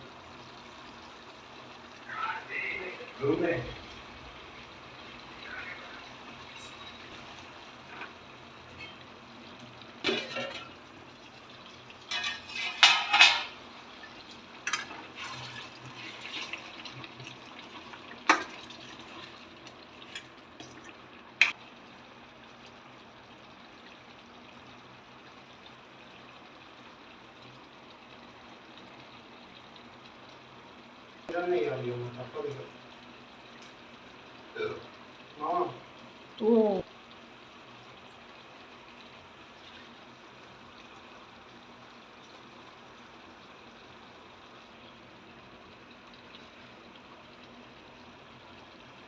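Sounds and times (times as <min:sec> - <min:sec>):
faint steady hiss: 0:00.0 - 0:49.0
metal utensils clinking on pot: 0:10.0 - 0:10.8, 0:12.1 - 0:13.6, 0:14.6 - 0:16.6.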